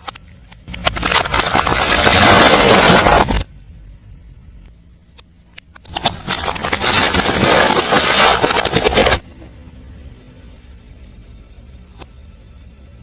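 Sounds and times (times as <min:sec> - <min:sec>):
car tyre crushing something crunchy: 0:00.7 - 0:03.5, 0:05.8 - 0:09.3.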